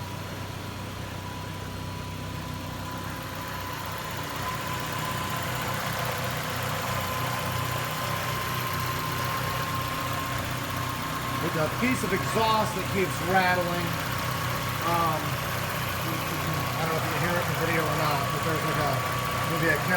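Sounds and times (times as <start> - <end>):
car engine idling: 0.0 - 19.9
exhaust rattling: 0.0 - 19.9.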